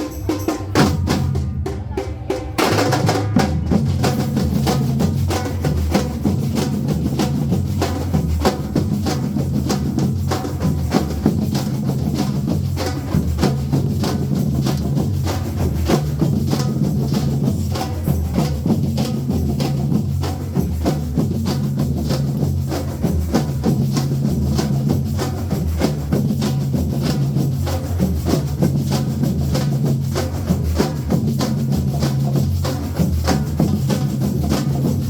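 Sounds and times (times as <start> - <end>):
percussion groove: 0.0 - 35.0.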